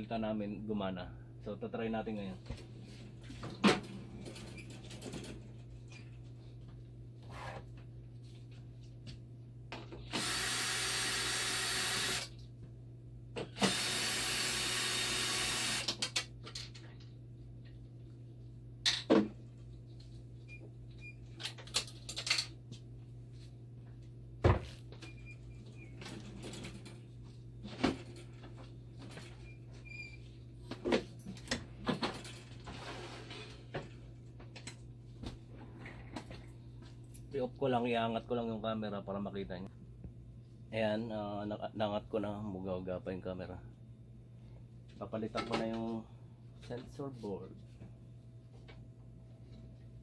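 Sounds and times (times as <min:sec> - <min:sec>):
low machine hum: 0:00.0 - 0:21.5
handheld power tool running: 0:10.1 - 0:12.4, 0:13.5 - 0:16.1.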